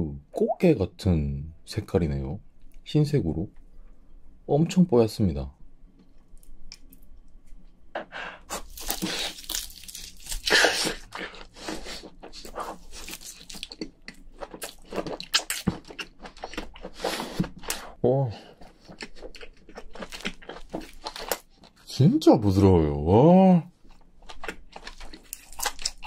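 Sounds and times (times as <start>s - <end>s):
person chewing wet mouth sounds: 8.5s - 21.8s.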